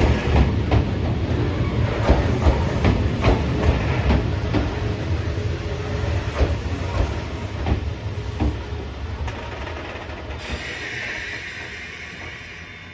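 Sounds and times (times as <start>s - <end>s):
train wheels clacking over rail joints: 1.8s - 4.8s, 6.2s - 10.9s.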